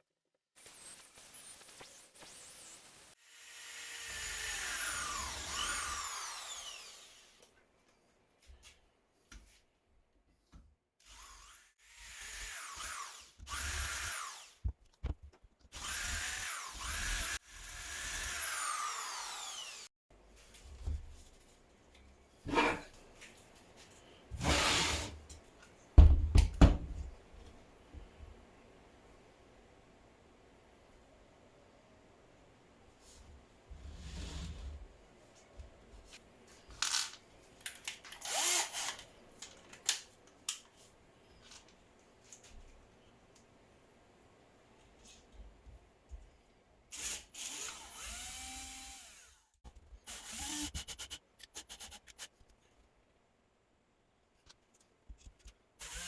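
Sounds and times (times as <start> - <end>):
electric drill spinning: 0.7 - 7.4, 11.0 - 14.6, 15.8 - 19.9, 38.2 - 39.1, 47.0 - 49.4, 50.1 - 51.1, 55.8 - 56.0.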